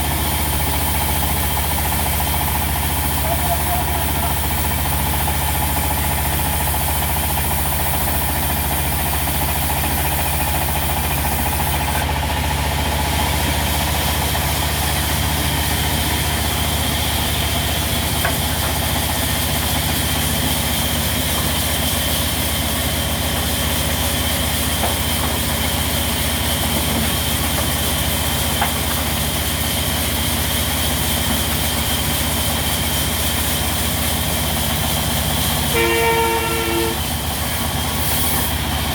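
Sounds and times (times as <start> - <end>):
diesel engine running steadily: 0.0 - 38.9.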